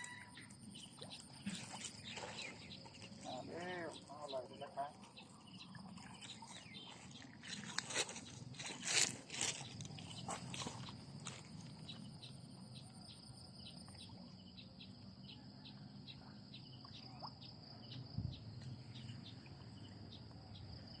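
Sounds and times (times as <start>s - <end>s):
insects buzzing: 0.6s - 15.4s.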